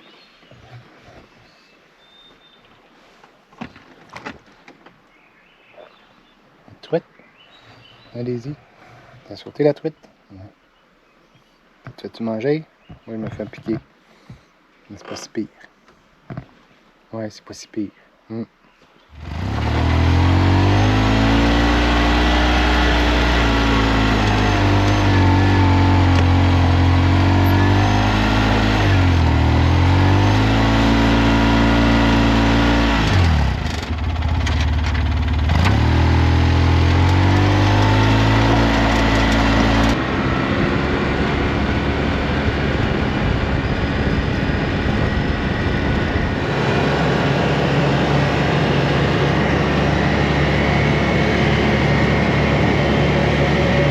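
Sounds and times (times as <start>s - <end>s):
utility vehicle engine driving: 19.1s - 53.9s.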